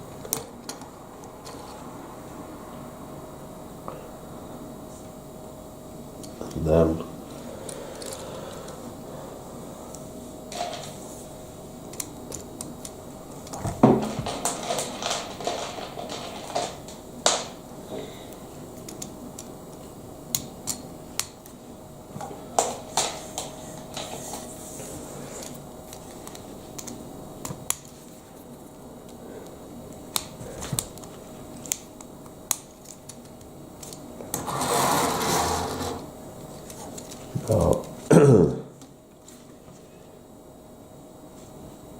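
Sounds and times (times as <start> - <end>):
rustle of plastic parts: 14.0 - 16.9.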